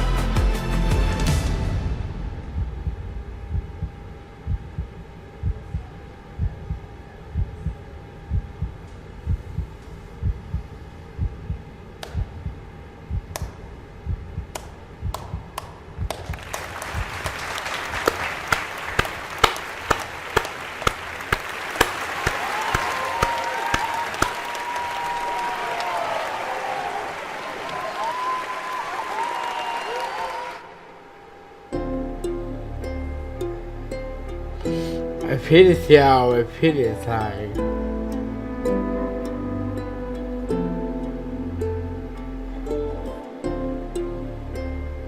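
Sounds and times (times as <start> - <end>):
slow low thumps: 1.3 - 16.4
applause with sharp claps: 15.6 - 30.6.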